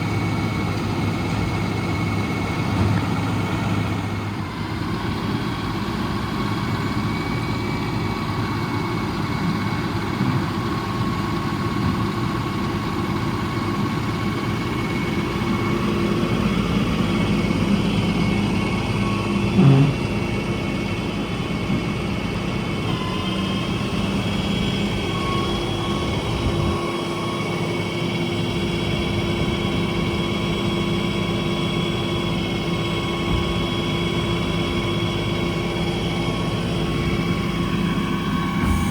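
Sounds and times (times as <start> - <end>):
diesel engine running: 0.0 - 38.9
steady whine: 32.5 - 38.9.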